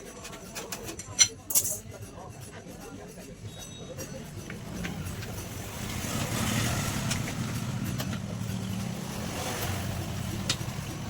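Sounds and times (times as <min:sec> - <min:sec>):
vehicle engine running: 0:04.4 - 0:11.0.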